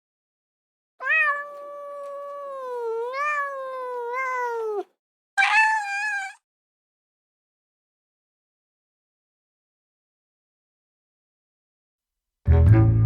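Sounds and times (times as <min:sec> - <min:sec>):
cat meowing: 0:01.0 - 0:06.4.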